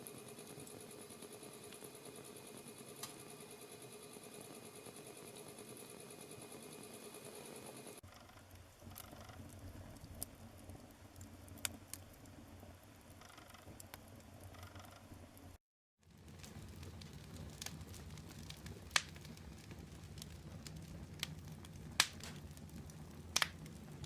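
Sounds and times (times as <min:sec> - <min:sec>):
wood fire burning: 0:00.0 - 0:03.4, 0:08.0 - 0:24.0
whirring hum with flutter: 0:00.0 - 0:15.6
fire crackles and pops: 0:08.0 - 0:24.0.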